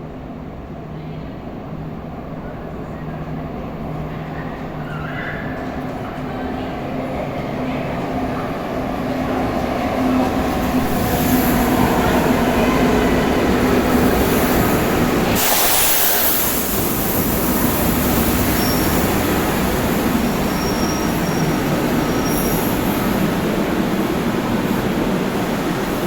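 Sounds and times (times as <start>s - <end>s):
train wheels rumbling on rails: 0.4s - 26.0s
short loud hiss: 15.3s - 17.7s
faint high squeal: 18.5s - 19.0s, 20.5s - 22.9s.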